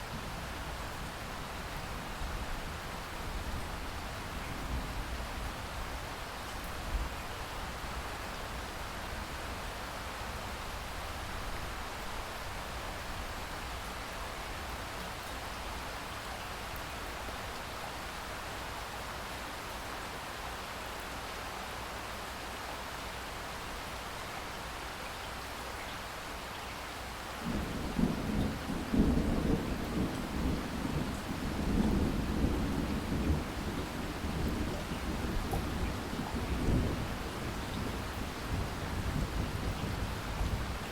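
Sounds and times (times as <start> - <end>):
rain hissing: 27.4 - 40.9
thunder rumbling: 27.4 - 40.9.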